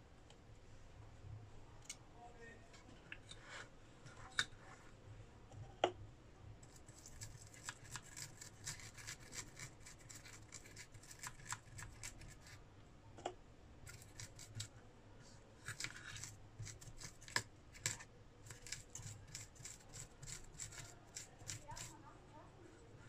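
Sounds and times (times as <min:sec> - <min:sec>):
small clicks and scratchy scrapes: 0:06.6 - 0:12.6, 0:13.8 - 0:22.1.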